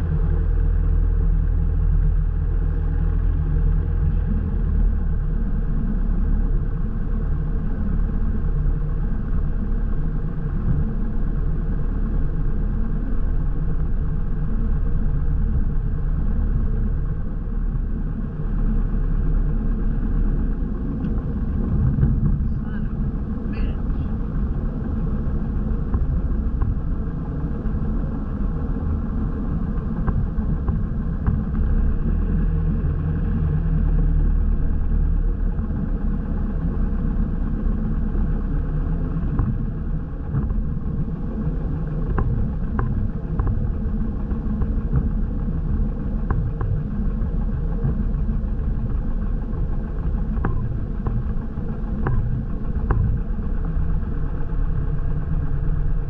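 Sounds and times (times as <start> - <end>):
airplane piston engine rumble: 0.0 - 56.0.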